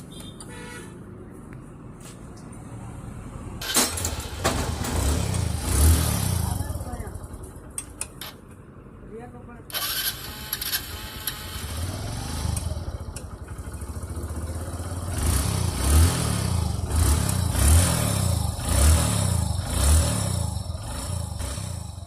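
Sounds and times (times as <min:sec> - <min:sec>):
motorcycle engine revving: 0:03.6 - 0:07.6, 0:09.7 - 0:22.0.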